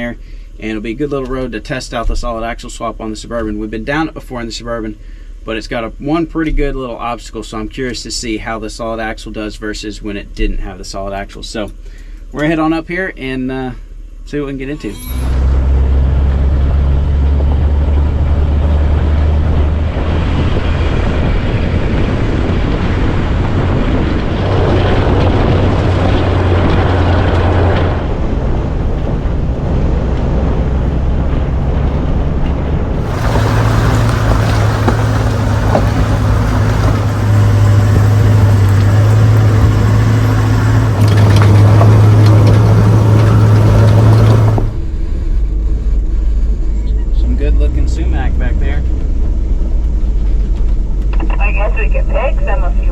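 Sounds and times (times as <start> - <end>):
vehicle engine droning: 14.8 - 52.9
road and wind noise: 15.0 - 52.9.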